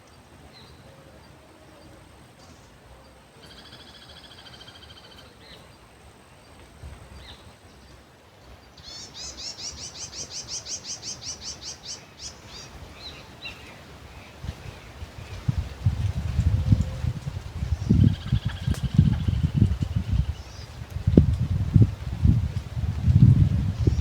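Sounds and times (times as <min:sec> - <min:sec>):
faint outdoor hiss: 0:00.0 - 0:24.0
wind rumble on microphone: 0:06.7 - 0:07.6, 0:12.5 - 0:24.0.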